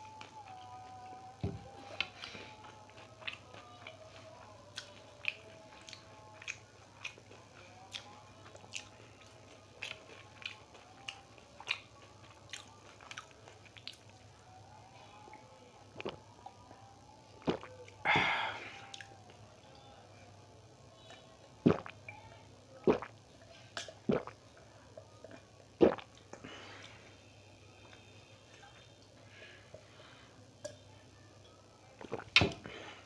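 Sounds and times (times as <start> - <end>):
crunchy chewing: 0.0 - 14.3
mouth sounds: 17.4 - 19.2, 21.1 - 22.2, 22.8 - 23.2, 25.8 - 26.4.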